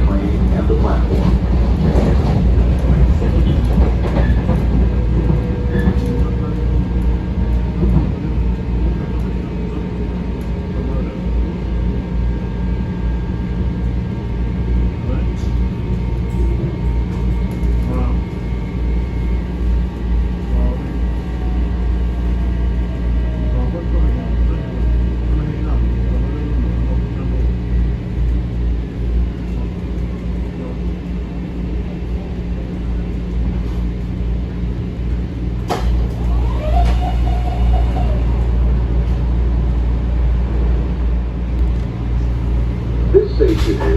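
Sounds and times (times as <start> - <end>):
electric train rumble: 0.0 - 43.9.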